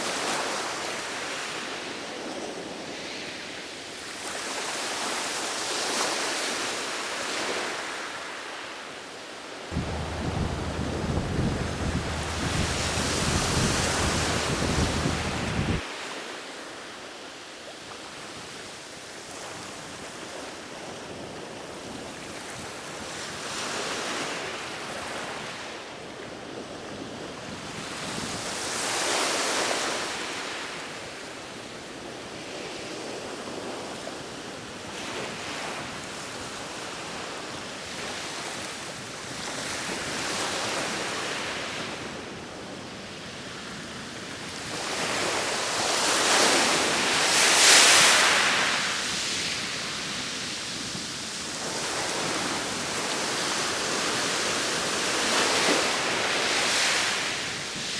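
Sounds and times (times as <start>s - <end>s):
sea waves breaking on shore: 9.7s - 15.8s
heavy low rumble: 9.8s - 15.8s.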